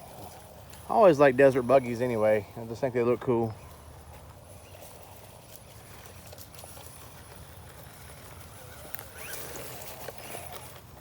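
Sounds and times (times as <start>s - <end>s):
electric motor whining: 3.6s - 11.0s.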